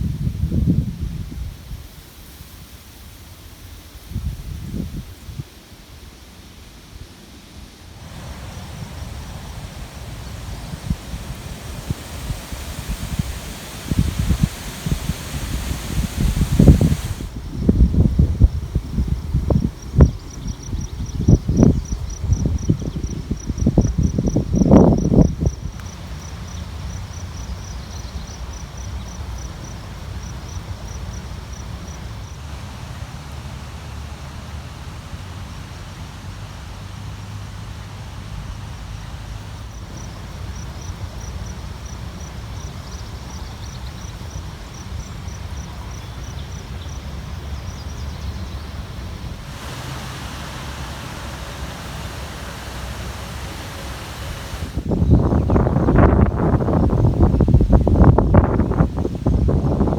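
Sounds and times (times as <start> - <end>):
wind buffeting microphone: 0.0 - 1.9, 8.0 - 26.0, 47.3 - 59.9
wind rushing through grass: 0.0 - 59.9
insect chirping: 8.0 - 32.5, 39.6 - 59.9.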